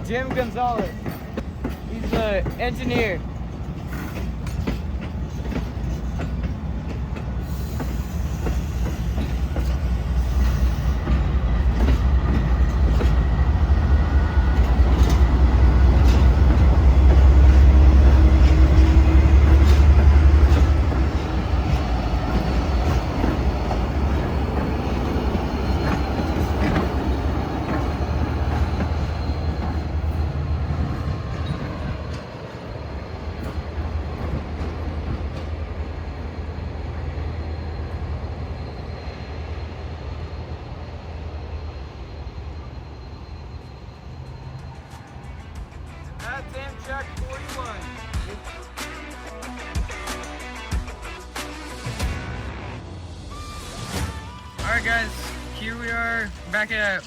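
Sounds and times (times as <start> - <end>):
train wheels clattering: 0.0 - 35.8
locomotive engine rumble: 0.0 - 48.7
wheels squealing: 14.0 - 34.4.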